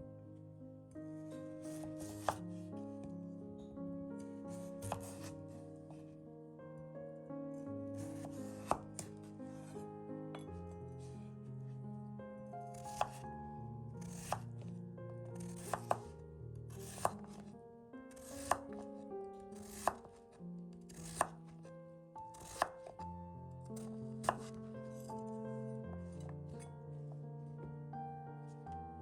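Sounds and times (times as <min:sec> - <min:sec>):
background music: 0:00.0 - 0:20.2, 0:20.9 - 0:29.0
knife cutting on cutting board: 0:01.6 - 0:02.4, 0:04.5 - 0:05.4, 0:08.0 - 0:09.7, 0:12.7 - 0:13.2, 0:14.0 - 0:14.4, 0:15.4 - 0:16.1, 0:16.8 - 0:17.5, 0:18.1 - 0:18.8, 0:19.6 - 0:20.1, 0:20.9 - 0:21.4, 0:22.3 - 0:23.0, 0:23.8 - 0:24.6.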